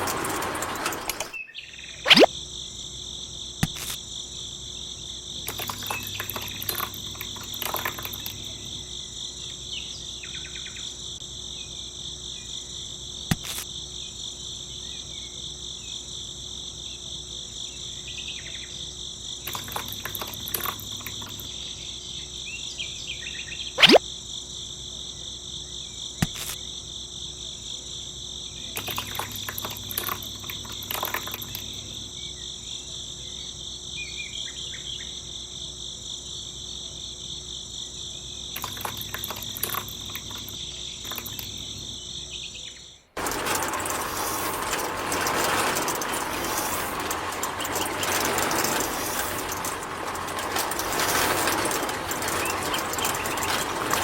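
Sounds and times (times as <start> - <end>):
hand work scraping and clattering: 0.0 - 1.4, 5.4 - 8.8, 19.5 - 21.5, 28.8 - 32.1, 38.6 - 41.9, 43.2 - 54.0
high-pitched insect chorus: 1.8 - 44.8.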